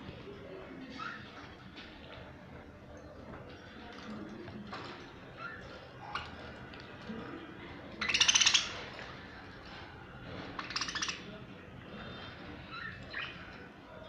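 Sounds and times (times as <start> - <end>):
budgie chattering: 7.9 - 8.9, 10.5 - 11.3.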